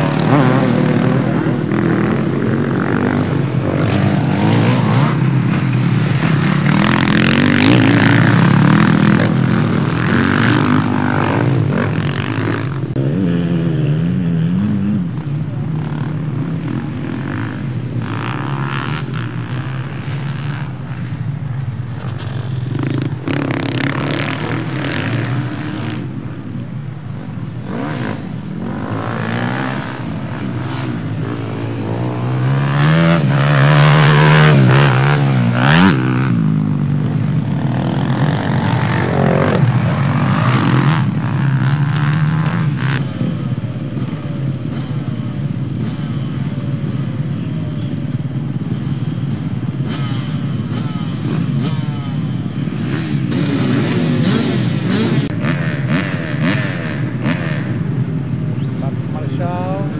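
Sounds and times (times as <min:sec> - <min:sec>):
motocross bike engines revving: 0:00.0 - 0:59.9.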